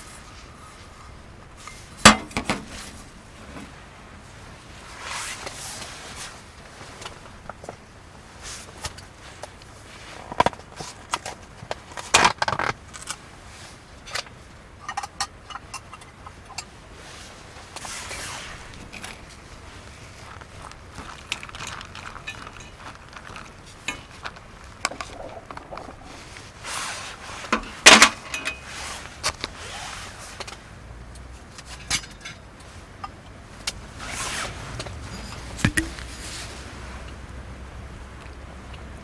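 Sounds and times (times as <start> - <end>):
camp gear clinking and knocking: 20.7 - 26.5, 35.0 - 36.4.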